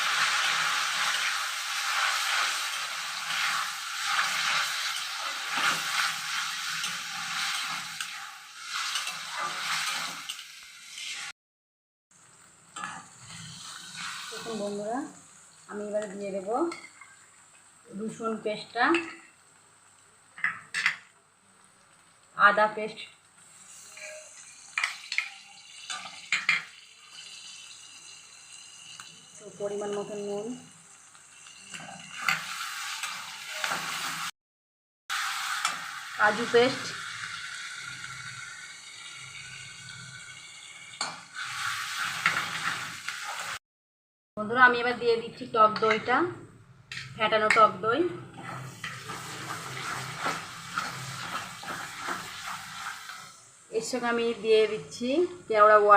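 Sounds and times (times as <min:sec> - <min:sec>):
paste sizzling in hot oil: 0:00.0 - 0:11.3, 0:12.2 - 0:18.6, 0:19.2 - 0:34.4, 0:35.1 - 0:43.6, 0:48.3 - 0:54.2
spatula stirring and scraping: 0:00.1 - 0:10.4, 0:23.7 - 0:25.3, 0:48.3 - 0:53.2.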